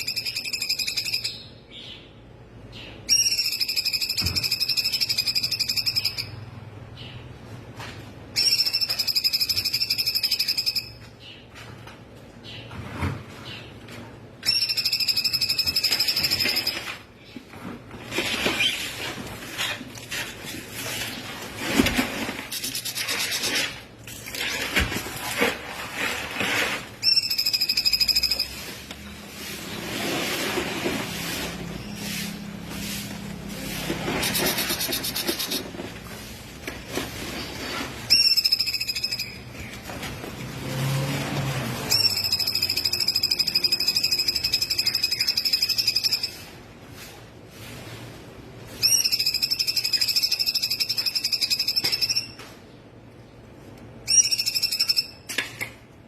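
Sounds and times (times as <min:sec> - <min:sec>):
songbird trilling and whistling: 0:00.0 - 0:02.1, 0:02.8 - 0:06.5, 0:08.4 - 0:11.0, 0:14.4 - 0:17.0, 0:27.0 - 0:28.6, 0:34.2 - 0:35.7, 0:38.1 - 0:39.5, 0:41.9 - 0:46.5, 0:48.8 - 0:52.4, 0:54.0 - 0:55.3.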